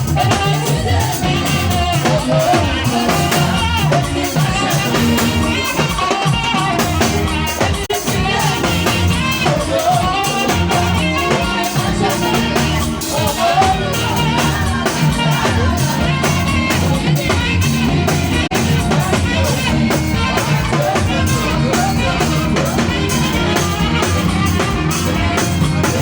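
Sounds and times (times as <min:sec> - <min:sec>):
full band with steady beat: 0:00.0 - 0:26.0
saxophone playing: 0:00.0 - 0:26.0.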